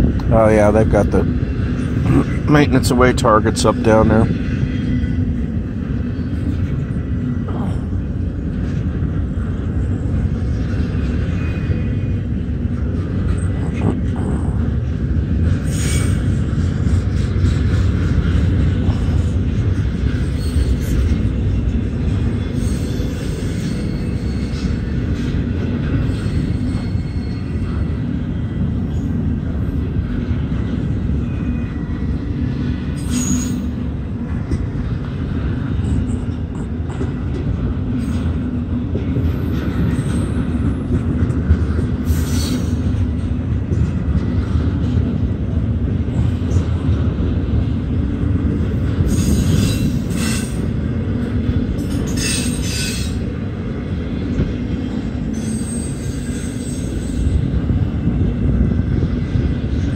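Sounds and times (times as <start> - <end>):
train wheels rumbling on rails: 0.0 - 59.9
metallic screeches: 22.5 - 24.8, 26.0 - 27.8, 33.0 - 33.7, 51.9 - 53.2, 55.3 - 57.4.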